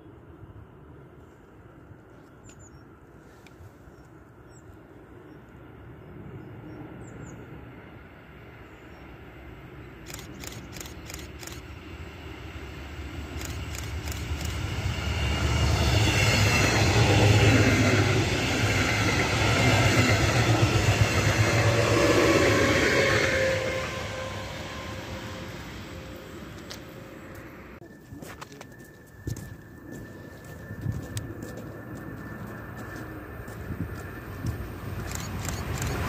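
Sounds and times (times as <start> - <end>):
steady whine: 7.5 - 36.0
train wheels rumbling on rails: 10.0 - 27.9, 29.2 - 36.0.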